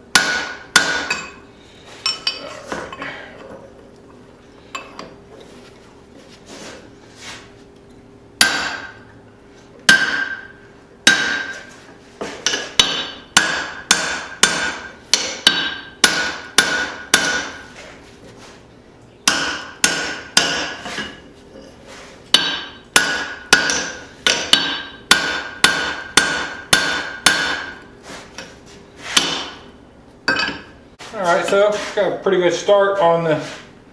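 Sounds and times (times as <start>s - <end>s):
hammer blows ringing on steel: 0.1s - 1.4s, 9.9s - 11.7s, 12.5s - 17.6s, 19.2s - 20.8s, 22.3s - 27.8s.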